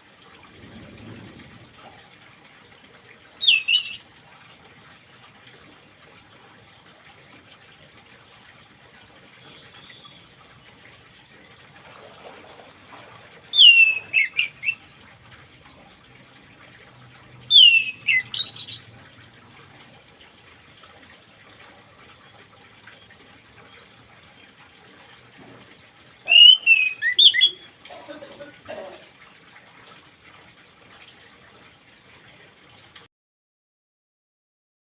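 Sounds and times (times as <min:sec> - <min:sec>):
thrush singing whistled phrases: 0:13.5 - 0:14.8, 0:17.5 - 0:18.9, 0:26.3 - 0:27.7.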